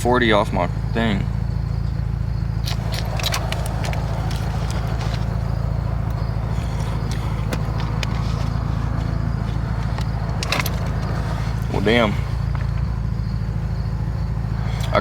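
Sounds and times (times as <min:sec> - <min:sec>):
car engine idling: 0:00.0 - 0:15.0
light clicks: 0:02.6 - 0:13.0.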